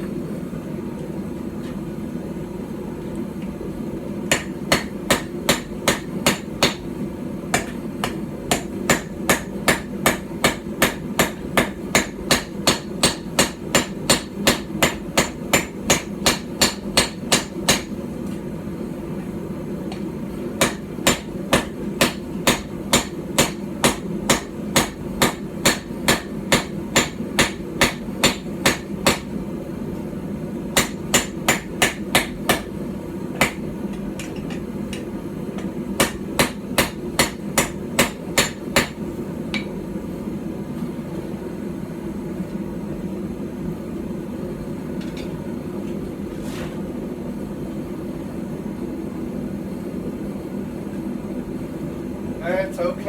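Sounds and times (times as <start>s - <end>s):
steady low hum: 0.0s - 53.0s
hammer striking hot steel on anvil: 4.3s - 18.0s, 19.9s - 29.4s, 30.7s - 39.8s.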